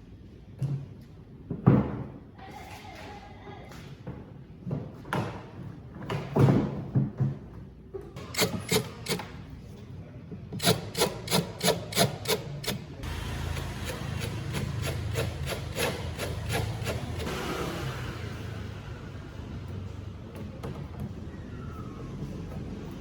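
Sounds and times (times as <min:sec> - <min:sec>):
rubbing rasping strokes: 0:13.4 - 0:17.6.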